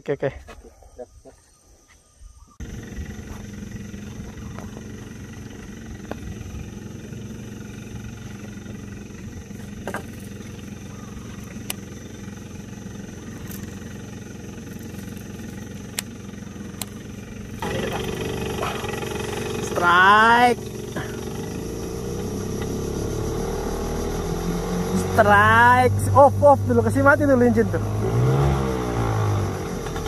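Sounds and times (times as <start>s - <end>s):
outboard motor running: 2.6s - 30.0s.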